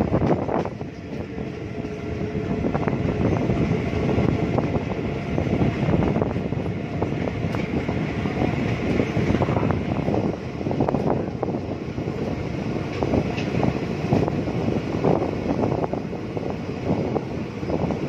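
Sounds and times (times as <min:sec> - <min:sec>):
clicks of wheels on rails: 0:00.0 - 0:02.0, 0:07.1 - 0:10.2, 0:12.8 - 0:14.3
train wheels rumbling on rails: 0:00.0 - 0:18.0
wind buffeting microphone: 0:00.0 - 0:18.0.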